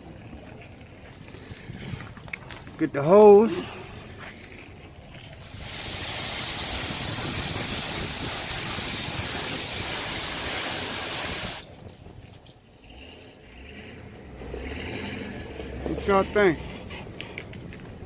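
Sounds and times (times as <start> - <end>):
hose water spraying on metal: 5.4 - 12.7.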